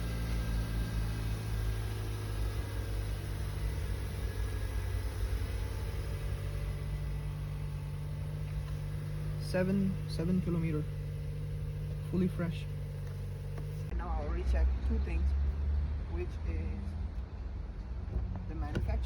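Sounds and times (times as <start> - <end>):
car engine idling: 0.0 - 15.2.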